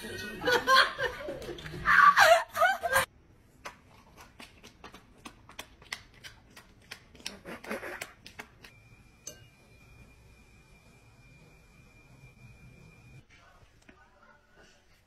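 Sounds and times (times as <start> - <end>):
people laughing: 0.0 - 3.1.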